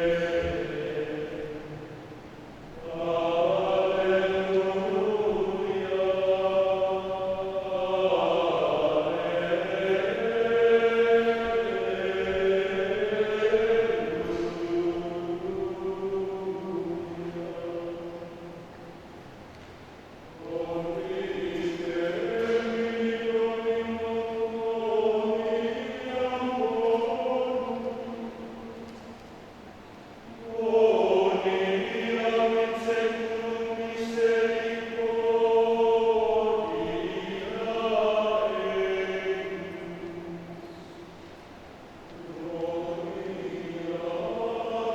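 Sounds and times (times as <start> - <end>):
men's choir singing: 0.0 - 19.0, 20.3 - 29.5, 30.3 - 41.3, 42.0 - 44.9.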